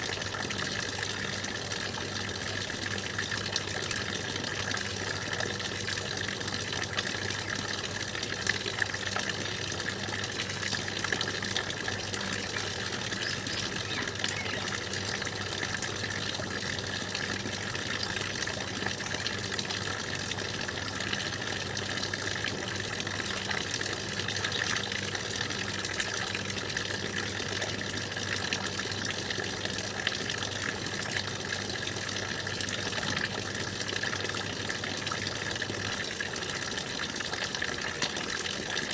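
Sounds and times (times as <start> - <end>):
stream water flowing: 0.0 - 26.1.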